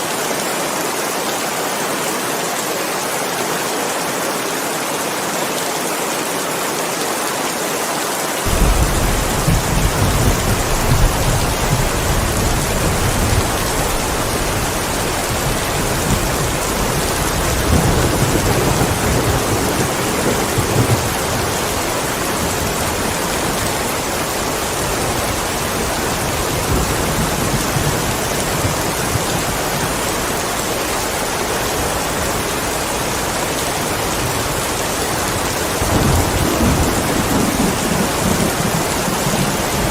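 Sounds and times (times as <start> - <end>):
steady rain falling: 0.0 - 39.9
thunder rumbling: 8.4 - 23.8, 35.7 - 39.9.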